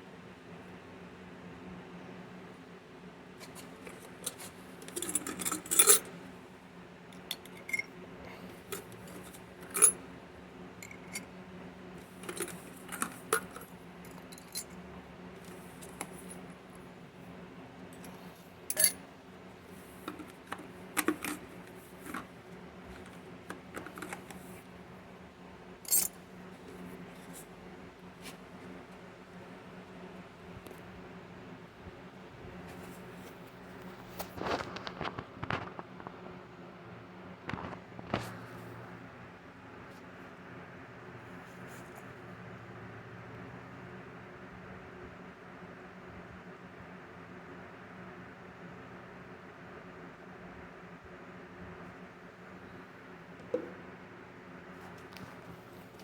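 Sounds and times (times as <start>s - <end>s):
steady low hum: 1.5s - 34.2s
silver pieces clinking on metal: 3.9s - 6.1s, 7.2s - 7.9s, 8.7s - 10.0s, 10.8s - 11.3s, 12.1s - 14.7s, 18.0s - 19.0s, 25.9s - 26.2s.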